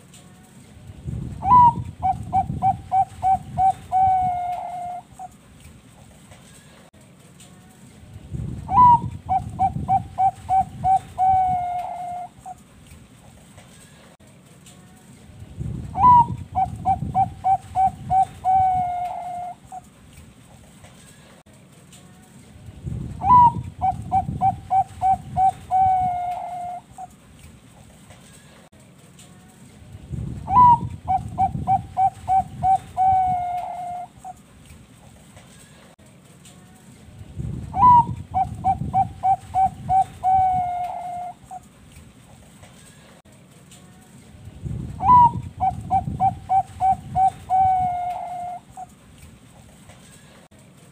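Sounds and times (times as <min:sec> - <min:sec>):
dove cooing: 0:01.4 - 0:05.4, 0:08.7 - 0:12.6, 0:16.0 - 0:19.9, 0:23.2 - 0:27.2, 0:30.5 - 0:34.4, 0:37.7 - 0:41.7, 0:45.0 - 0:48.9.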